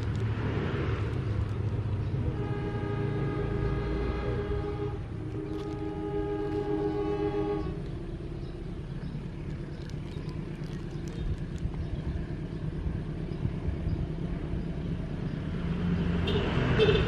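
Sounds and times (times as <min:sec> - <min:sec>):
train running rumble: 0:00.0 - 0:17.0
train horn blast: 0:02.0 - 0:08.0.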